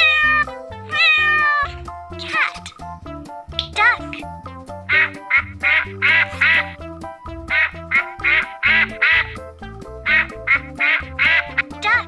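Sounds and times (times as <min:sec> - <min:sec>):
children's background music: 0:00.0 - 0:12.0
duck quacking: 0:04.9 - 0:06.8, 0:07.5 - 0:09.4, 0:10.0 - 0:12.0.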